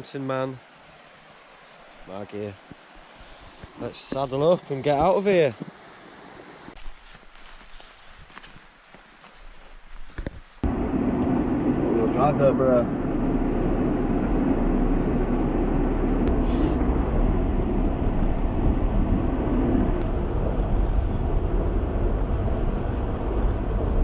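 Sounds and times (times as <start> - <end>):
rough track noise: 6.8 - 24.0
vehicle engine rumble: 10.6 - 24.0.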